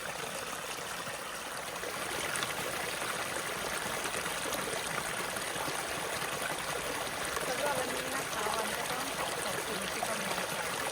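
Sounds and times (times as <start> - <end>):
stream flowing water: 0.0 - 10.9.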